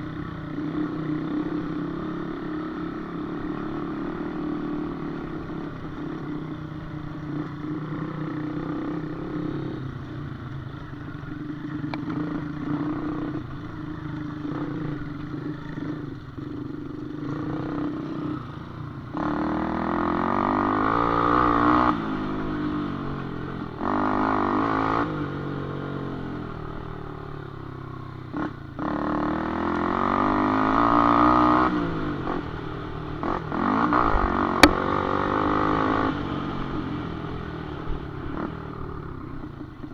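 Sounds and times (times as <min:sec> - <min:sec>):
motorcycle engines revving: 0:00.0 - 0:39.9
sharp crack: 0:34.6 - 0:35.0.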